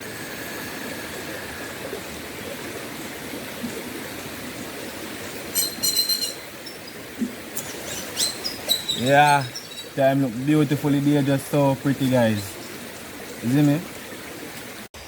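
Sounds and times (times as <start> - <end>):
river water running: 0.0 - 15.0
bird high-pitched notes: 5.4 - 7.0, 7.6 - 10.1.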